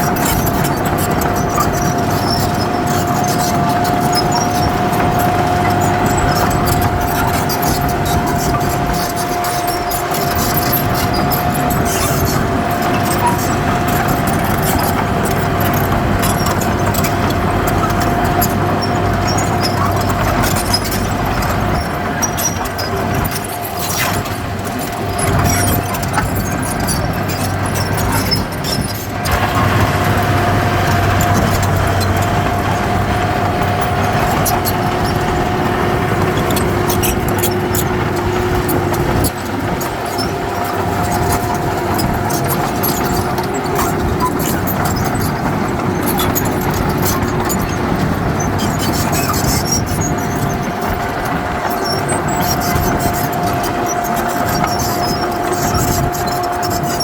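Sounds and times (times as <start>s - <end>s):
deep engine drone: 0.0s - 57.0s.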